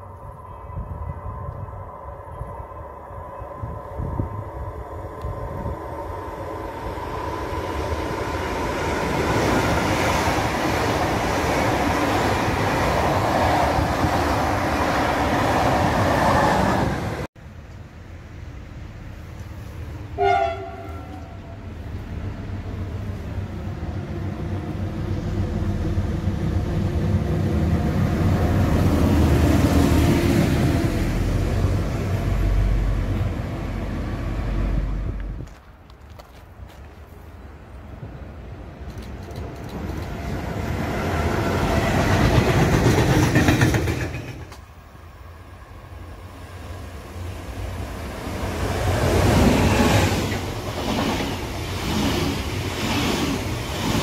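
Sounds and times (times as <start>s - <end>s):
trains passing at speed: 0.0s - 54.0s
train horn blast: 20.2s - 21.6s.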